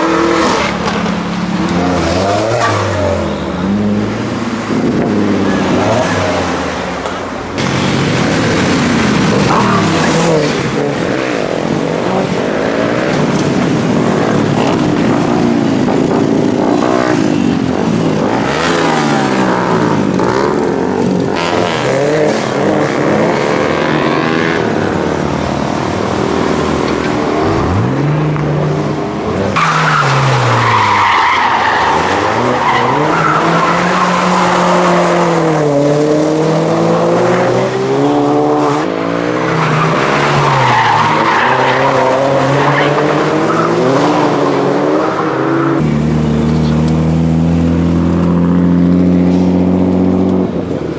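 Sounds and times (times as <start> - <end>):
tyres squealing and skidding: 0.0 - 23.2, 26.4 - 35.9, 39.0 - 48.0
car engine revving: 0.0 - 50.9.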